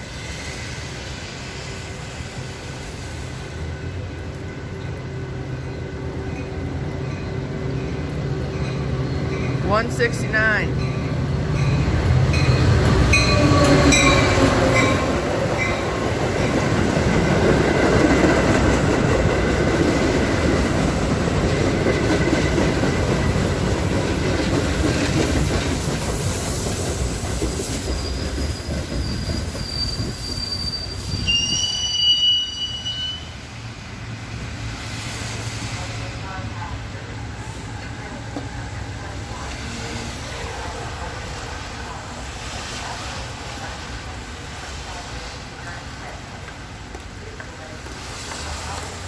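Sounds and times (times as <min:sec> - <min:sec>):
train rumbling and rattling: 0:00.0 - 0:49.0
wheel and brake squeals: 0:27.8 - 0:33.4.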